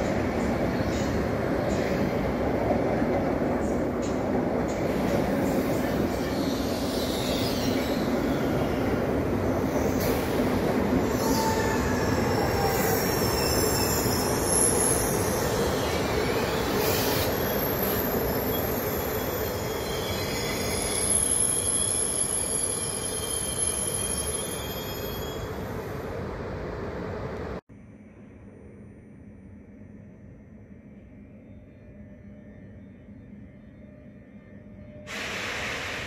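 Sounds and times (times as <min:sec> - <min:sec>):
train rolling rumble: 0:00.0 - 0:20.9
wheel squeals: 0:11.1 - 0:25.6.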